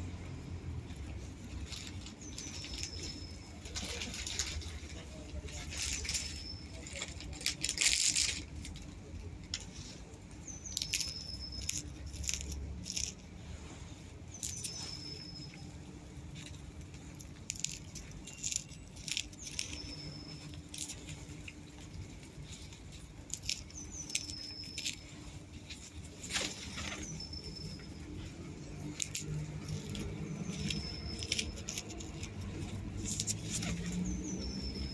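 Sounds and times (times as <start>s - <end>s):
low steady rumble: 0.0s - 34.9s.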